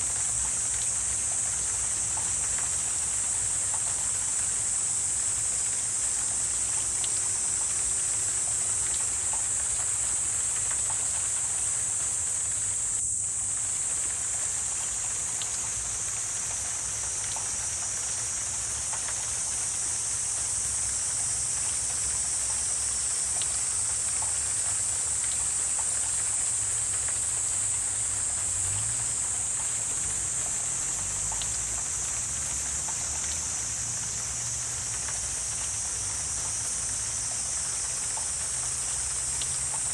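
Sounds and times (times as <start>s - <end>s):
high-pitched insect chorus: 0.0s - 39.9s
faint ticks: 0.2s - 12.2s, 12.9s - 39.9s.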